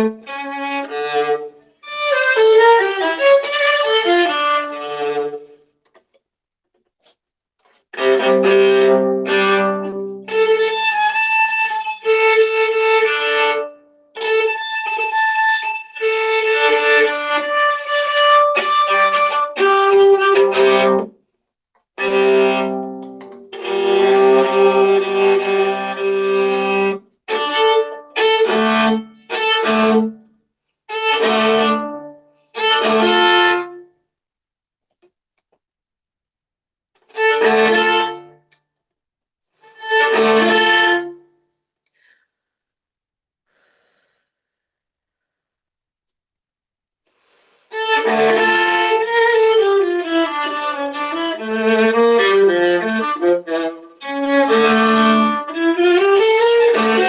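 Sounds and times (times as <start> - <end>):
solo viola bowed: 0.0 - 5.6, 8.0 - 21.1, 22.0 - 30.2, 30.9 - 33.9, 37.1 - 38.4, 39.6 - 41.3, 47.7 - 57.0.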